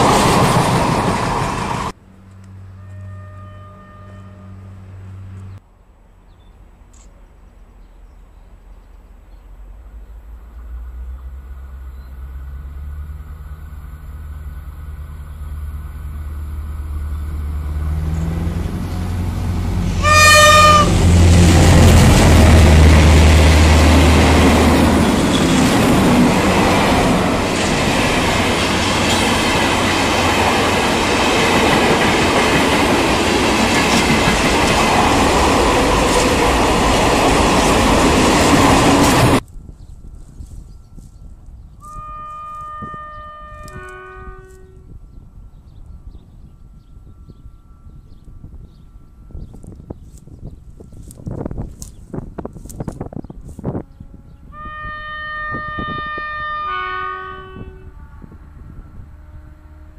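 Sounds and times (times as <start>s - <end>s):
wheel and rail noise: 0.0s - 54.8s
locomotive engine rumble: 0.0s - 56.6s
train horn blast: 2.6s - 5.3s, 17.8s - 30.4s, 41.8s - 45.0s, 53.5s - 59.9s.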